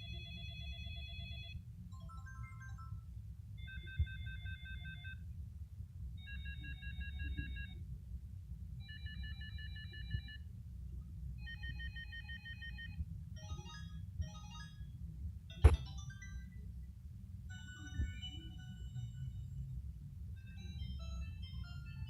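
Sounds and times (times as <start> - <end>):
mobile phone ringtone: 0.0 - 5.2, 6.2 - 7.8, 8.8 - 10.4, 11.4 - 14.9, 15.6 - 16.6, 17.5 - 19.6, 20.4 - 22.0
steady low hum: 0.0 - 22.0.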